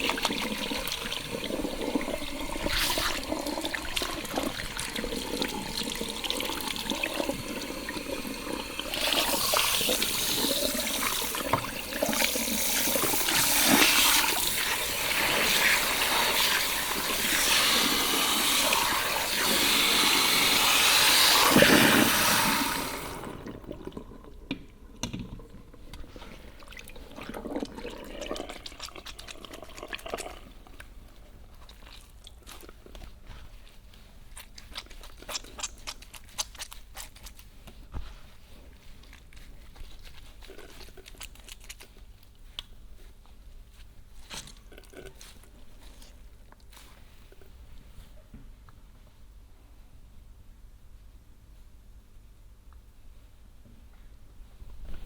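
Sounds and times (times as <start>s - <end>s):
faint crackling and rubbing: 30.4s - 48.3s.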